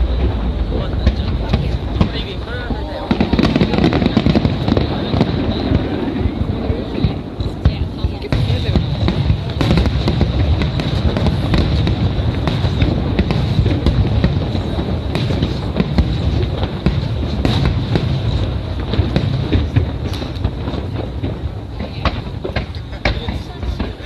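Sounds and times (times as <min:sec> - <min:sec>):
fireworks booming and cracking: 0:00.0 - 0:24.0
heavy low rumble: 0:00.0 - 0:24.0.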